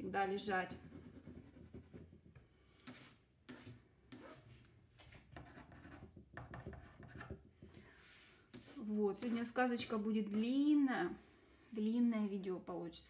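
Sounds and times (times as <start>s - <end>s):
pencil scratching on paper: 0.7s - 2.2s, 5.4s - 7.5s, 8.5s - 10.5s.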